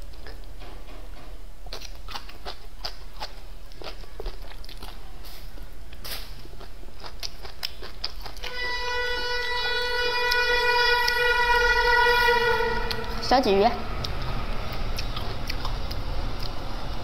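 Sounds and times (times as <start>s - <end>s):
crunching and chewing fried food: 1.7s - 8.6s, 14.0s - 17.0s.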